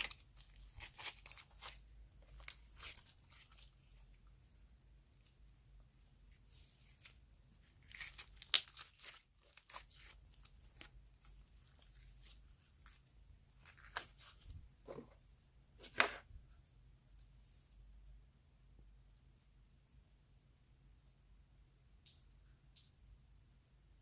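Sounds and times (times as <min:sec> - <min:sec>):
slime crackling and tearing: 0:00.0 - 0:04.1, 0:06.5 - 0:14.4.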